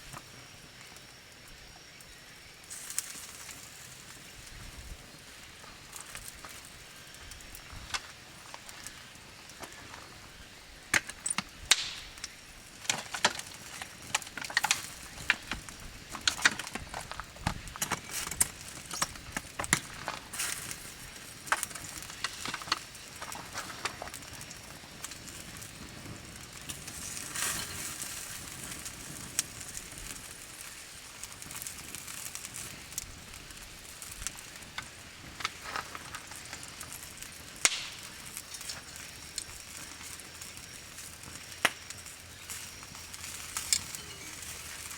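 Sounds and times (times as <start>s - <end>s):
campfire crackling and popping: 0.0s - 44.9s
faint steady hiss: 0.0s - 44.9s.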